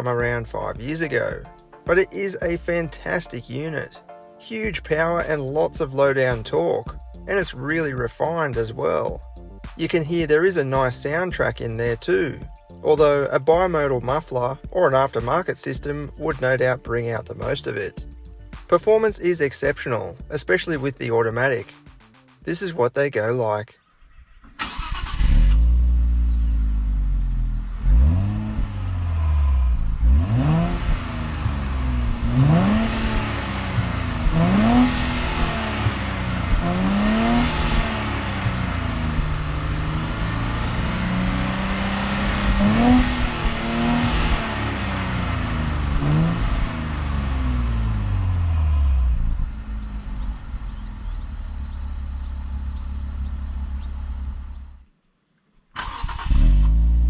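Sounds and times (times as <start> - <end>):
car engine accelerating: 24.3 - 54.8, 55.8 - 57.0.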